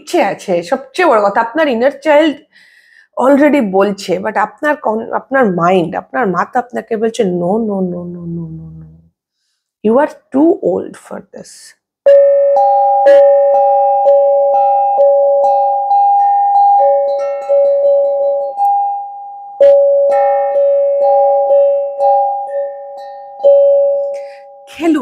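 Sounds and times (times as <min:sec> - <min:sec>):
two-note bell chime: 0:12.1 - 0:24.8.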